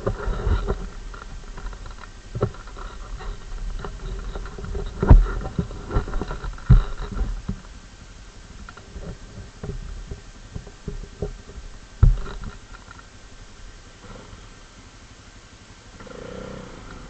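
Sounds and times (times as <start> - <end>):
knocks and thumps: 0.0 - 7.7, 8.6 - 12.9
atv engine humming: 0.0 - 17.0.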